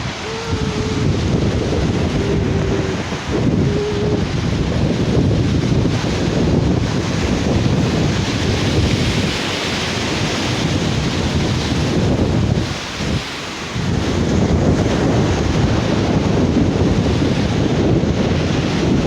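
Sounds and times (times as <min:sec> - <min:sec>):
sea surf washing onto beach: 0:00.0 - 0:19.0
wind buffeting microphone: 0:00.0 - 0:19.0.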